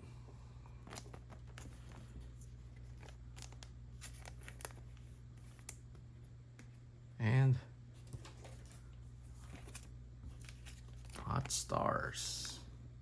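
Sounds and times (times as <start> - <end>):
low electrical hum: 0.0 - 13.0
trading cards clicking and rustling: 0.8 - 5.9, 9.4 - 11.7.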